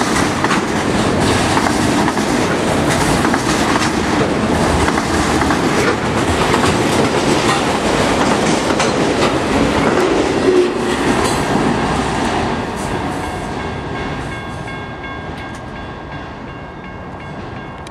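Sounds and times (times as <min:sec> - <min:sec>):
freight train wheels clattering: 0:00.0 - 0:17.9
crossing bell ringing: 0:05.6 - 0:08.1, 0:12.6 - 0:17.9.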